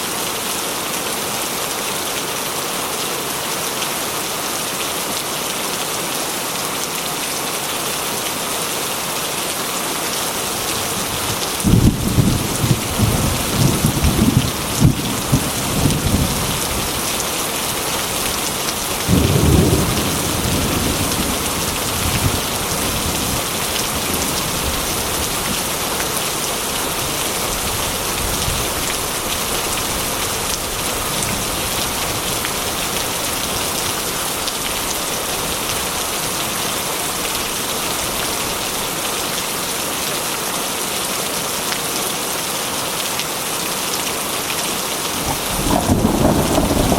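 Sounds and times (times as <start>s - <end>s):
heavy rain: 0.0s - 46.9s
thunder rumbling and cracking: 11.2s - 17.1s, 18.0s - 25.6s, 45.1s - 46.9s.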